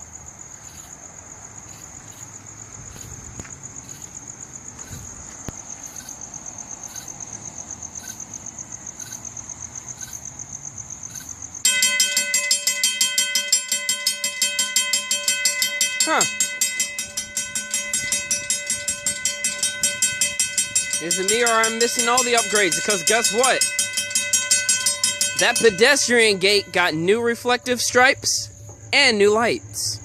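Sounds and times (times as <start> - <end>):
crickets trilling: 0.0 - 30.0
crossing warning bell ringing: 11.6 - 30.0.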